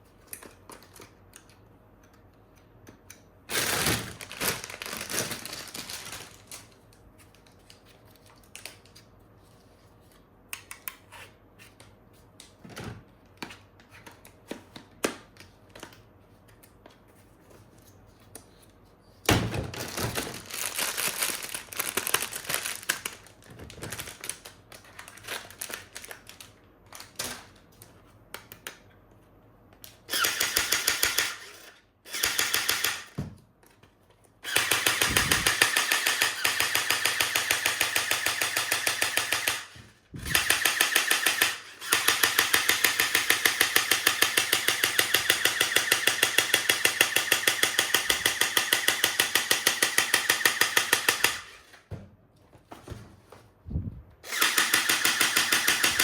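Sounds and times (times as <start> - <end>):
fast plastic rattle: 3.5 - 6.7, 19.7 - 27.4
plastic packaging crinkling: 3.5 - 8.9, 19.8 - 27.6.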